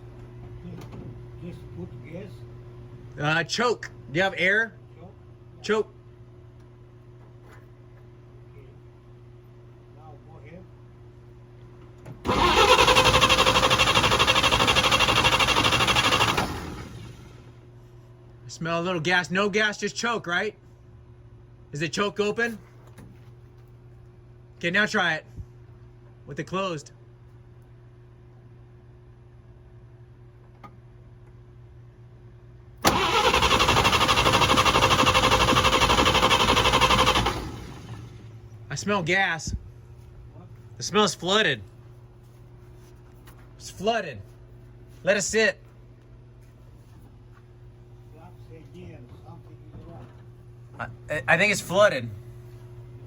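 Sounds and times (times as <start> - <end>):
engine cranking by starter: 12.2 - 17.5, 32.8 - 38.4.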